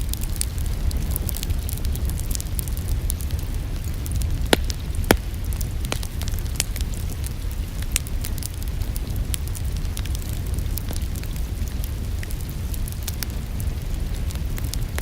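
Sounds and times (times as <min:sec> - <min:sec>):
low fire rumble: 0:00.0 - 0:15.0
wood fire crackling and popping: 0:00.0 - 0:15.0.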